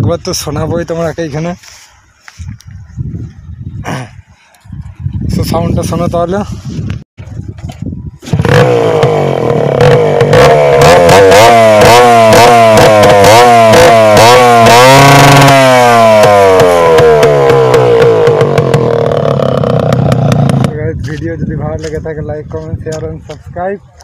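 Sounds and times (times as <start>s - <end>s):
motorcycle engine revving: 8.2s - 21.2s.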